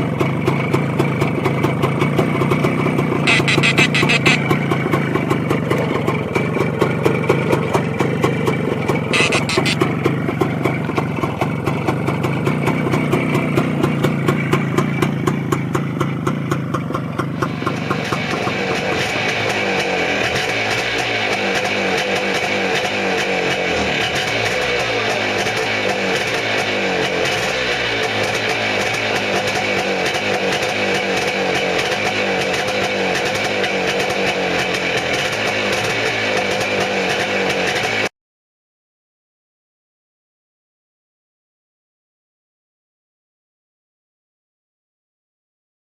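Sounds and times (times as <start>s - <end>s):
single-cylinder motorcycle engine: 0.0s - 38.1s.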